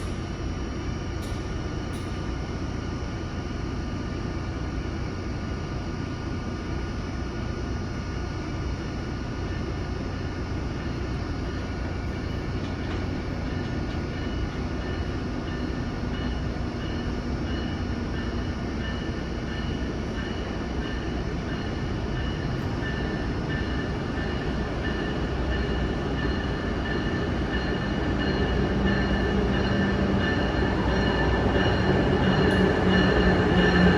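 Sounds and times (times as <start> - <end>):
electric train rumble: 0.0 - 33.9
high-pitched train tones: 8.8 - 33.9.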